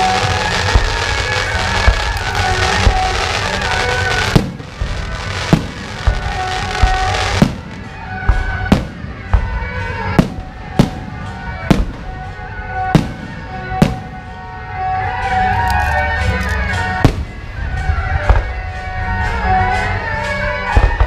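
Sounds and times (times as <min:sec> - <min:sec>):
rushing crackle: 0:00.0 - 0:09.0
firework shells bursting: 0:00.0 - 0:12.2.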